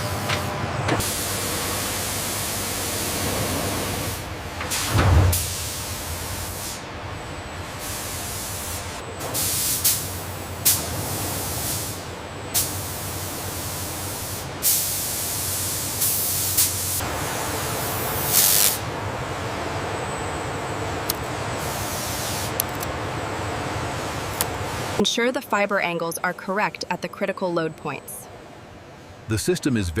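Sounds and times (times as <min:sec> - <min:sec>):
low machine hum: 0:00.0 - 0:09.4
spraying hiss: 0:18.0 - 0:18.8.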